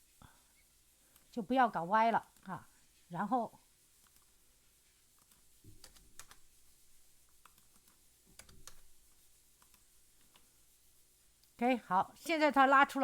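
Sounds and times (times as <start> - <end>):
computer keyboard and mouse clicks: 5.2 - 6.5, 7.4 - 8.9, 9.6 - 10.5.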